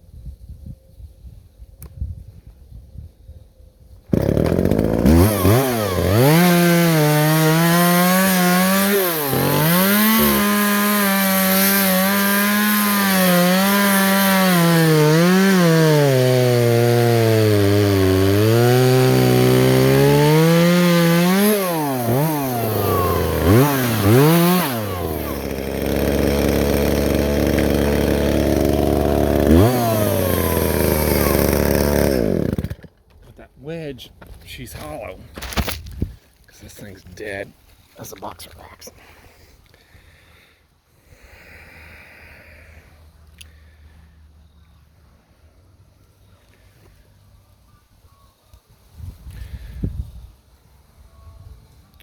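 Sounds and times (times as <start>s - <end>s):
chainsaw cutting into tree: 4.1s - 33.1s.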